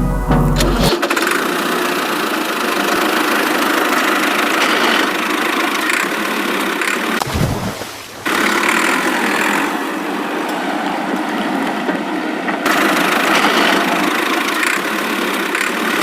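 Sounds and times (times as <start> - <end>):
background music: 0.0 - 0.9
rattly motor running: 0.6 - 7.2, 8.3 - 9.8, 12.7 - 16.0.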